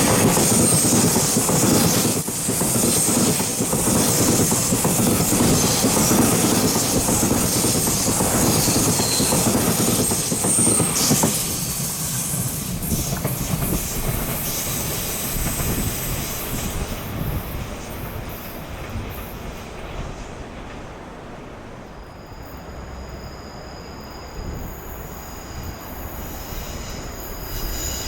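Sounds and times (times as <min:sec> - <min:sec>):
high wheel squeals: 0:00.0 - 0:17.6, 0:22.0 - 0:28.0
train wheels clattering on rails: 0:00.0 - 0:21.1.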